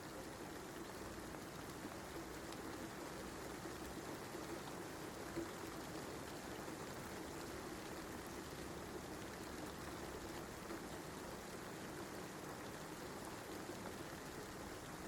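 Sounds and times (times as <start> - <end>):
steady rain falling: 0.0 - 15.0
small tick: 2.4 - 2.8.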